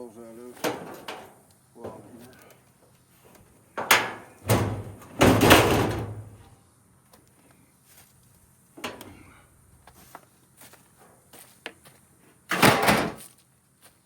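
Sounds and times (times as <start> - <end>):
heavy metallic bangs: 3.8 - 6.4.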